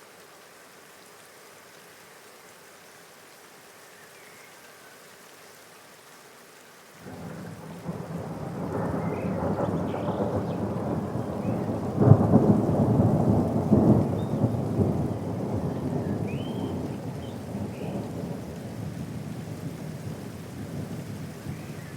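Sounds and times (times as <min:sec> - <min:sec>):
steady rain falling: 0:00.0 - 0:21.9
deep rumble of thunder: 0:07.0 - 0:21.9.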